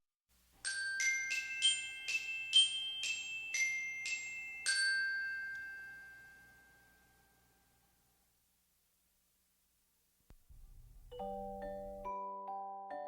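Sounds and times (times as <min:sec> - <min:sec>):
glockenspiel melody: 0:00.6 - 0:07.7, 0:11.0 - 0:13.0.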